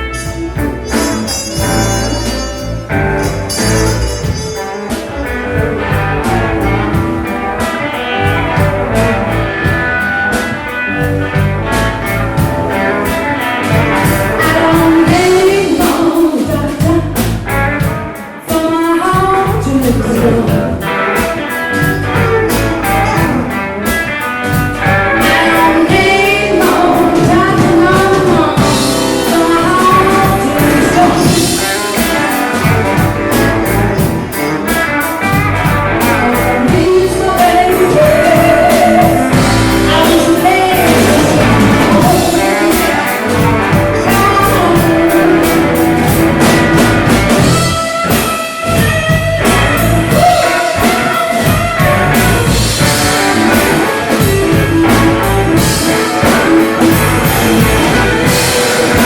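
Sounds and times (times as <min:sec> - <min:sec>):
drum kit: 0:00.0 - 0:59.0
electric guitar: 0:00.0 - 0:59.0
person singing: 0:12.7 - 0:59.0.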